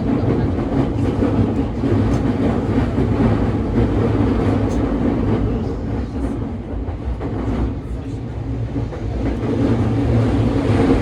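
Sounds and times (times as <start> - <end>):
wheels rumbling on rails: 0.0 - 11.0.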